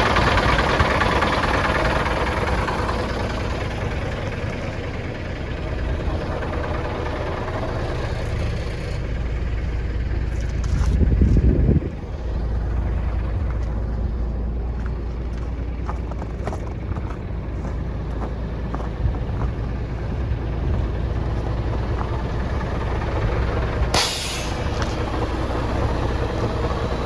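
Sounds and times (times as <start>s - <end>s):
diesel truck engine idling: 0.0s - 27.0s
compressed air hiss: 24.0s - 24.7s.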